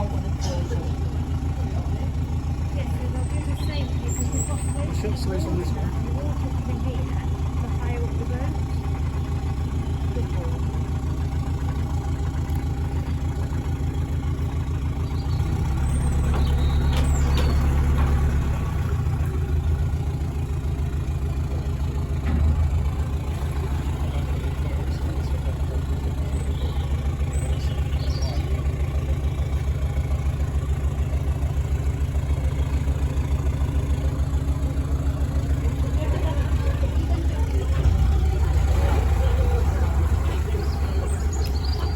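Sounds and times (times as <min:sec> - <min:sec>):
boat engine running: 0:00.0 - 0:41.9.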